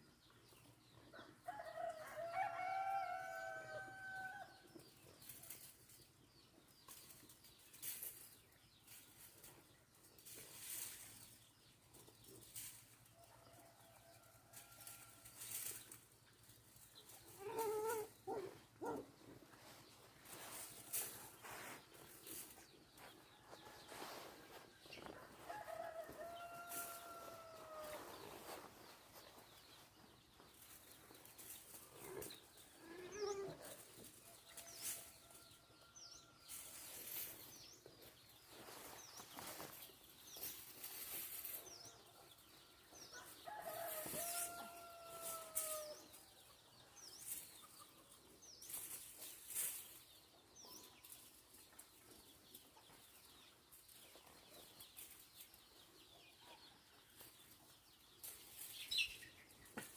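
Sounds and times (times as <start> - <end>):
rooster crowing: 1.5 - 4.5
small birds chirping: 4.5 - 59.9.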